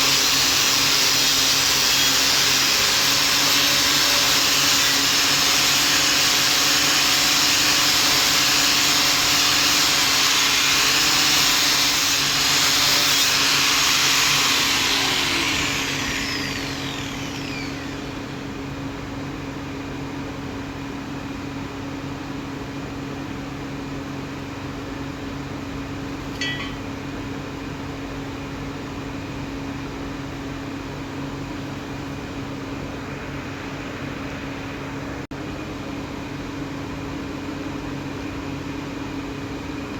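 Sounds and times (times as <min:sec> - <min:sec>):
angle grinder polishing steel: 0:00.0 - 0:18.3.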